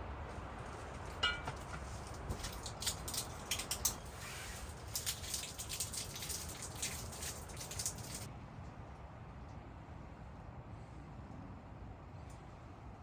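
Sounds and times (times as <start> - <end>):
rain pattering: 2.1 - 8.3.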